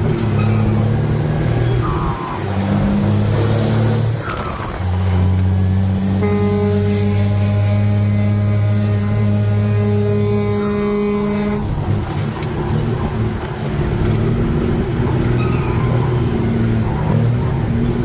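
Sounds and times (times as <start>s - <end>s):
truck engine and road rumble: 0.0s - 18.0s
steady droning tone: 3.8s - 15.4s.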